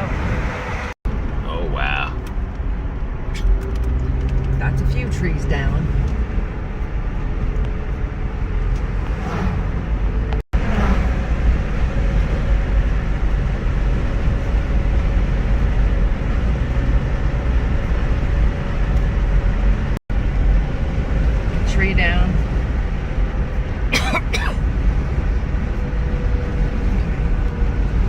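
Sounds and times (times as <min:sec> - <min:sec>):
car engine rumble: 0:00.0 - 0:28.0
tyres on road: 0:00.0 - 0:28.0.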